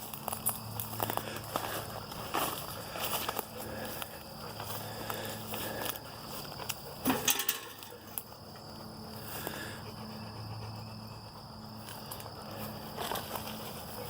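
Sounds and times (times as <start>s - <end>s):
steps crunching through debris: 0.0s - 7.4s, 11.9s - 14.0s.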